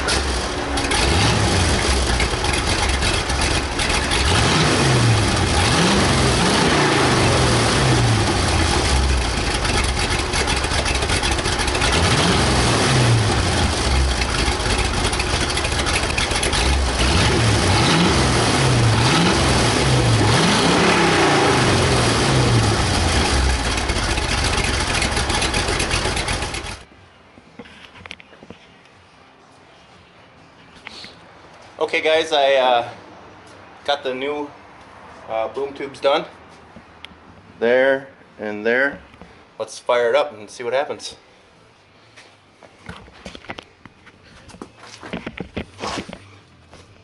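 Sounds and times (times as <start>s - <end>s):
engine idling and revving: 0.0s - 26.9s.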